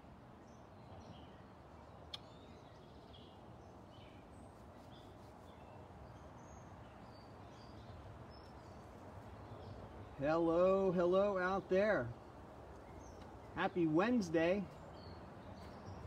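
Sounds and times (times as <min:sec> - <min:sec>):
bird chirps: 0:00.0 - 0:16.0
faint outdoor ambience: 0:00.0 - 0:16.0.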